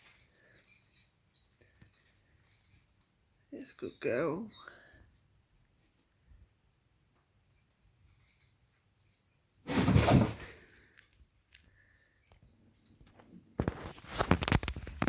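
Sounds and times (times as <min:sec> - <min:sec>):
rustling bump: 0:09.6 - 0:10.7
claws scratching and scrabbling: 0:13.1 - 0:15.0.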